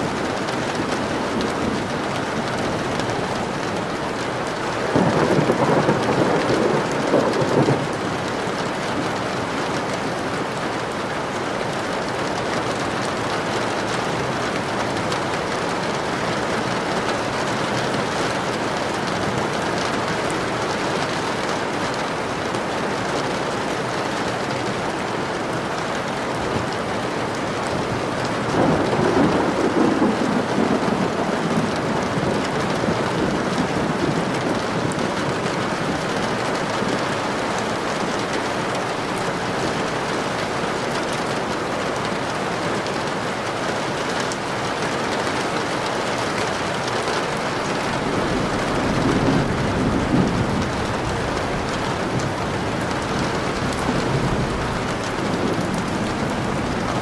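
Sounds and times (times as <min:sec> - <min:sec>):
rain falling: 0:00.0 - 0:57.0
thunder rumbling: 0:00.1 - 0:09.2, 0:26.6 - 0:41.5, 0:47.6 - 0:57.0.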